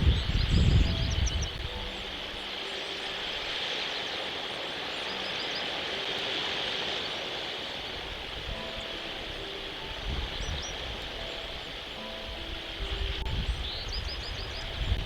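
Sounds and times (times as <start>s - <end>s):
high bird chirps: 0.0s - 7.3s
steady hiss: 0.0s - 15.0s.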